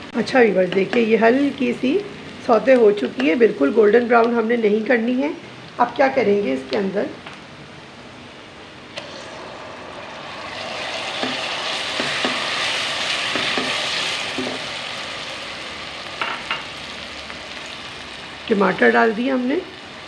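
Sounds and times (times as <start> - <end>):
loud sizzle in a pot: 0.0 - 7.0, 8.2 - 20.0.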